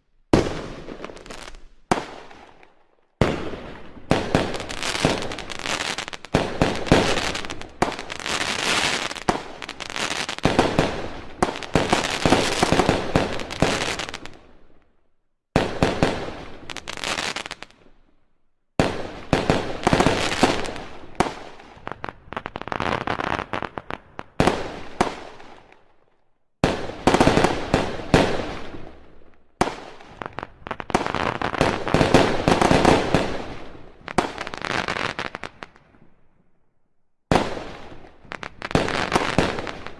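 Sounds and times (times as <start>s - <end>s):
fireworks bangs and crackles: 0.3s - 14.8s, 15.5s - 17.9s, 18.8s - 25.9s, 26.6s - 36.2s, 37.3s - 39.9s.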